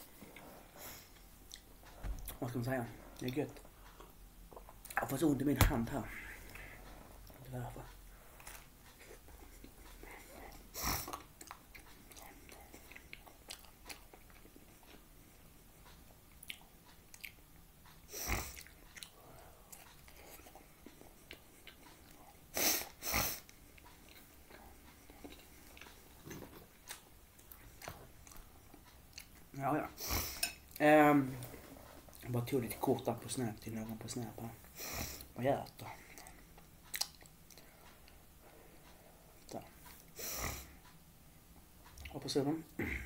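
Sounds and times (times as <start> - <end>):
person chewing pizza: 0.1 - 2.4, 6.2 - 29.6, 35.2 - 41.0.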